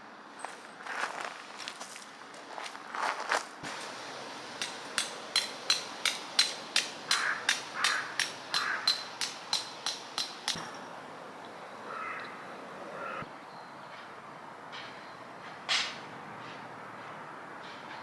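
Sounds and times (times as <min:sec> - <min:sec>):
hammer striking metal stake: 0:03.8 - 0:10.9.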